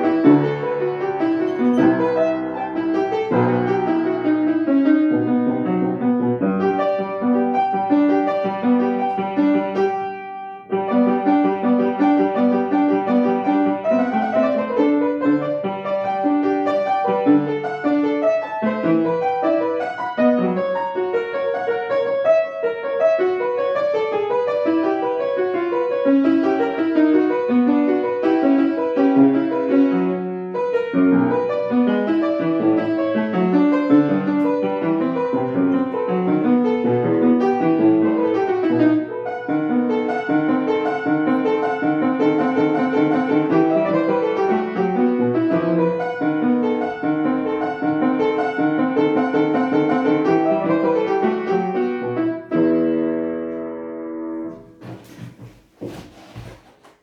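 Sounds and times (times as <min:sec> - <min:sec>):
solo piano: 0:00.0 - 0:57.0.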